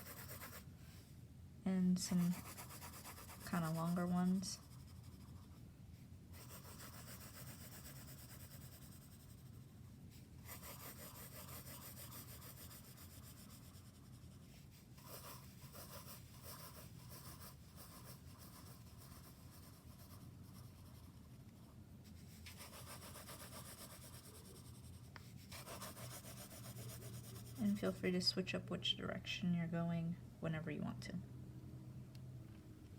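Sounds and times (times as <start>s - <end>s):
drawing tool scratching paper: 0.0s - 0.6s, 2.1s - 5.6s, 6.4s - 9.5s, 10.4s - 14.4s, 15.0s - 21.2s, 22.2s - 28.1s
steady low hum: 0.0s - 32.9s.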